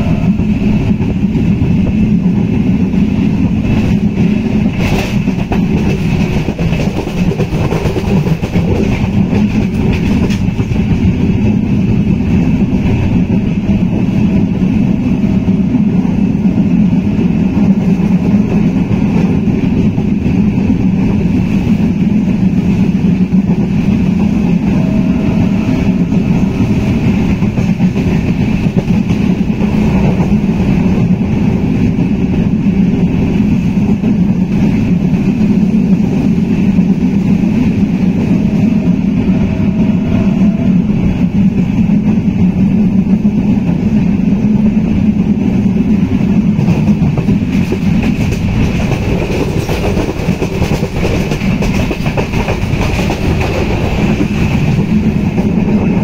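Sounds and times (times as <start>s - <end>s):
train wheels rumbling and rattling: 0.0s - 56.0s.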